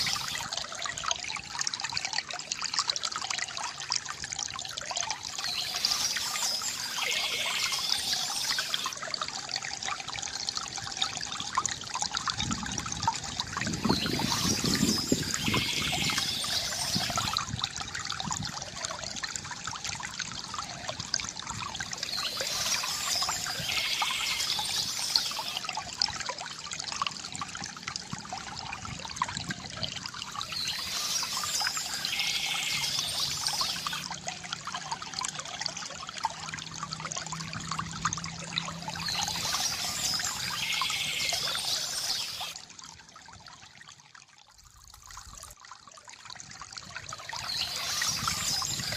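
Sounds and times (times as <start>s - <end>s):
water trickling from fountain: 0.0s - 48.9s
birds chirping: 5.4s - 8.9s, 13.8s - 17.4s, 22.0s - 25.6s, 30.4s - 34.0s, 38.9s - 42.5s, 47.4s - 48.9s.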